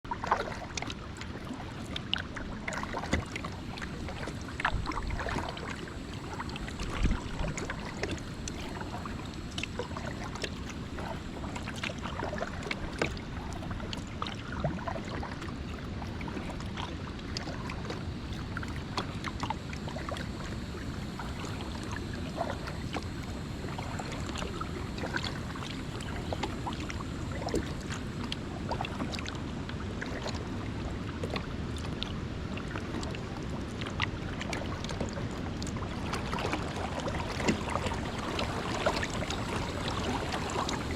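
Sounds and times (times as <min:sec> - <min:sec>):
paddle strokes in water: 0:00.1 - 0:40.9
steady low noise: 0:02.4 - 0:14.4, 0:15.5 - 0:31.0.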